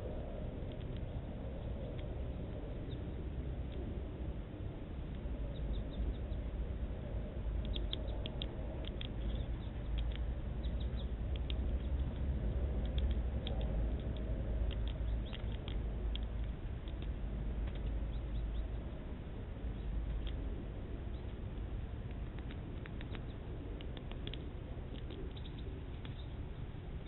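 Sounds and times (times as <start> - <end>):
small birds chirping: 0.0 - 27.0
steady low rumble: 0.0 - 27.0.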